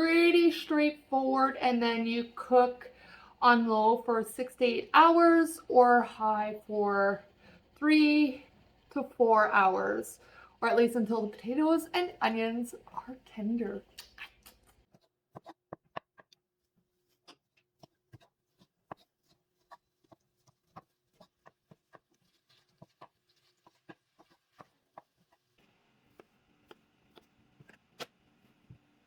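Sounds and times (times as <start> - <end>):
low steady hum: 0.0 - 14.8.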